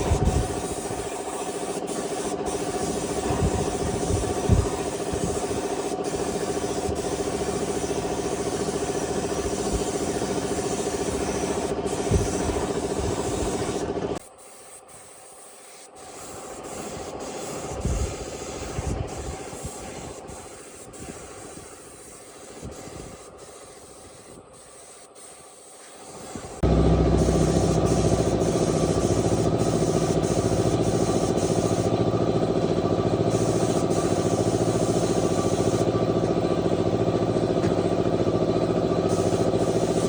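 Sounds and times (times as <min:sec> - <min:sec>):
engine idling: 0:26.6 - 0:40.0.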